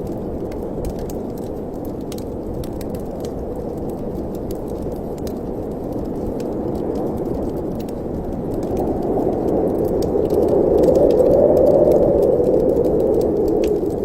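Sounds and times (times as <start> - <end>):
wood fire crackling: 0.0 - 14.0
low rushing wind: 6.1 - 14.0.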